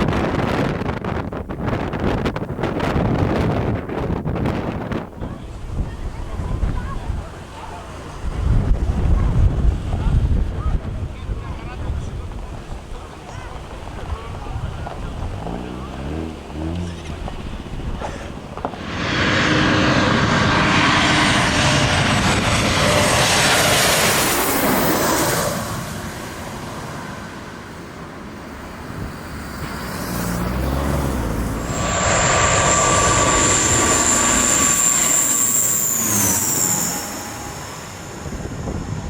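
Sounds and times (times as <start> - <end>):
jet engines rushing: 4.4 - 39.0
high jet engine whine: 17.1 - 39.0.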